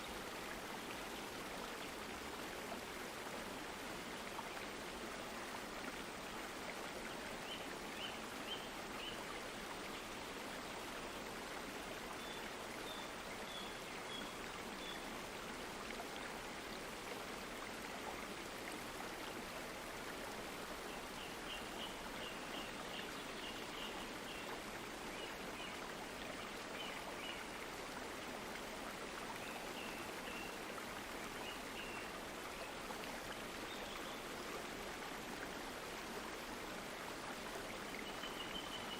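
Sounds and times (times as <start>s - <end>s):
stream water babbling: 0.0s - 38.9s.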